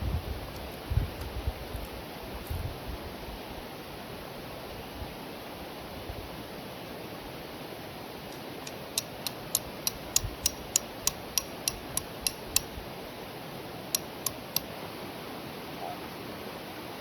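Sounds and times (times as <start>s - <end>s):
sharp ticks: 8.3s - 12.7s, 13.9s - 14.7s.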